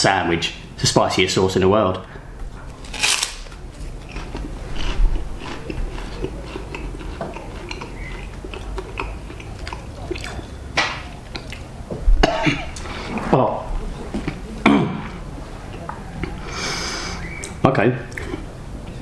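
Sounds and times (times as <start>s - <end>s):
man chewing and eating: 2.4s - 19.0s
mouth clicks: 4.1s - 11.7s, 15.7s - 19.0s.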